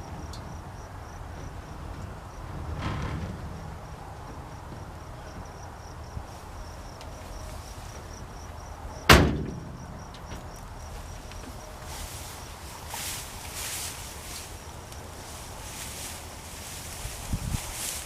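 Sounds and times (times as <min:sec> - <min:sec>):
insects chirping: 0:00.0 - 0:18.0
loud ringing bang: 0:09.1 - 0:10.2.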